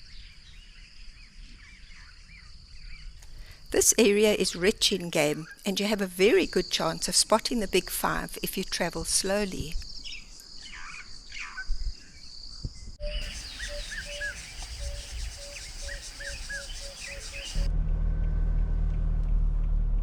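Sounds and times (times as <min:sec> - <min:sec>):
birds chirping: 0:13.0 - 0:17.7
high insect trill: 0:13.2 - 0:17.7
vehicle engine humming: 0:13.2 - 0:17.7.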